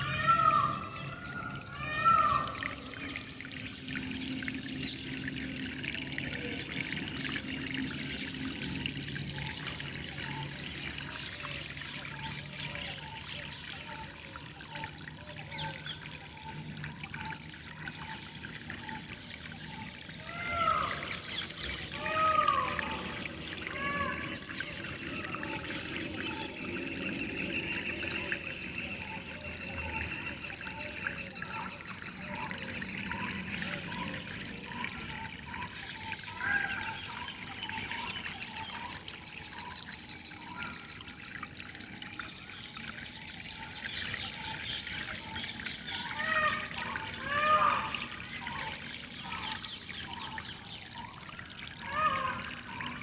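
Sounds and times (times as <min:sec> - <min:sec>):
birds chirping: 0:00.0 - 0:05.5, 0:42.1 - 0:53.0
water trickling and flowing: 0:00.0 - 0:53.0.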